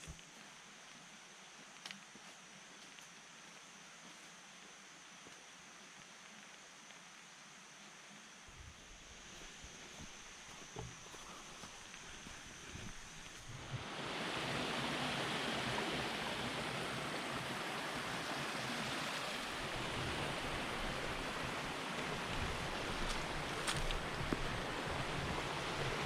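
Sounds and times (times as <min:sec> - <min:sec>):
waterfall rushing: 0:13.8 - 0:26.0.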